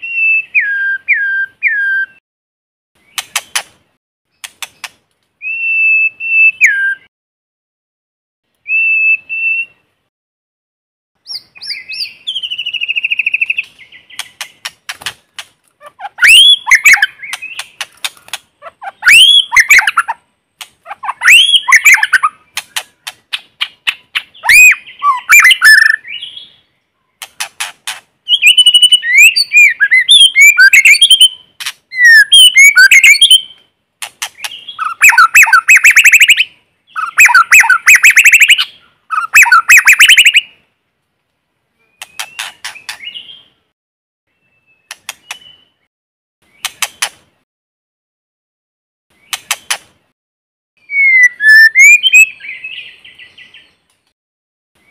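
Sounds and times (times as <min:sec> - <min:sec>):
bird singing whistles and clicks: 0:03.0 - 0:03.7, 0:04.4 - 0:07.1, 0:11.2 - 0:15.5, 0:16.2 - 0:26.4, 0:27.2 - 0:40.5, 0:42.0 - 0:43.4, 0:44.8 - 0:45.8, 0:46.5 - 0:47.2, 0:49.2 - 0:49.9, 0:50.8 - 0:52.8.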